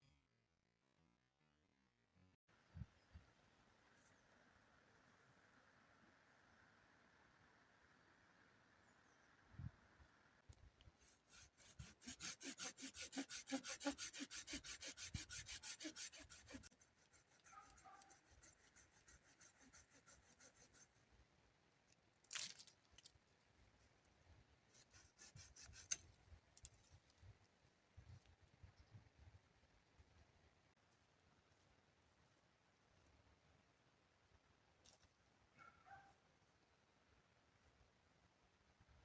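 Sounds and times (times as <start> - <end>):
sharp scrape: 11.0 - 20.9
tool rasping wood: 11.0 - 20.9.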